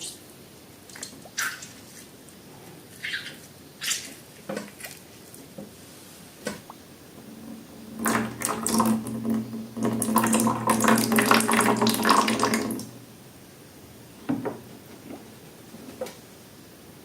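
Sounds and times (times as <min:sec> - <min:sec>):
low steady hum: 0:06.4 - 0:17.0
liquid pouring and splattering: 0:06.6 - 0:13.0.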